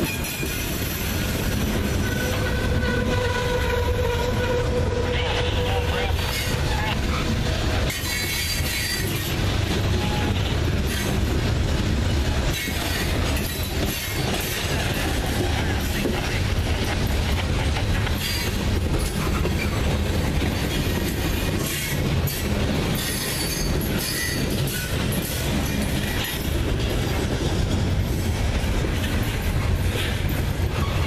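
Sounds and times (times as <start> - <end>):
freight train wheels rumbling on rail: 0.0 - 31.0
wheel squeal: 23.0 - 24.9.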